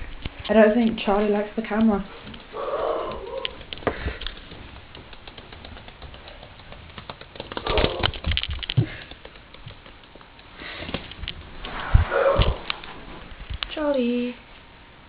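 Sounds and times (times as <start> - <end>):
bird beak pecking and nibbling: 1.7 - 11.8.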